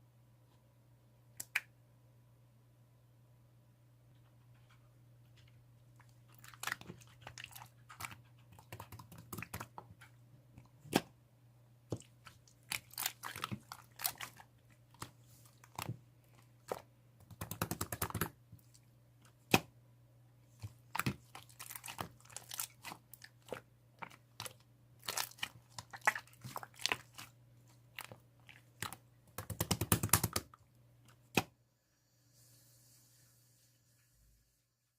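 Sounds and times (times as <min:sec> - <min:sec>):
slime crackling: 0:11.9 - 0:15.9, 0:20.6 - 0:30.4.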